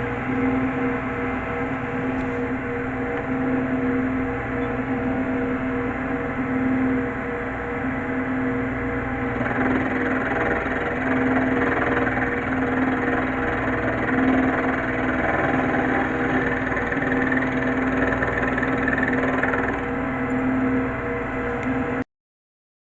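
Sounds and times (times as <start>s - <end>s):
machine tool motor hum: 0.0s - 22.0s
rough metal cutting noise: 9.2s - 20.0s.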